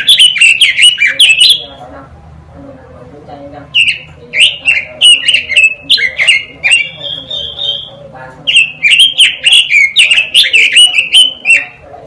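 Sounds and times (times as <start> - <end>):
songbird singing whistled notes: 0.0 - 1.7, 3.8 - 11.8.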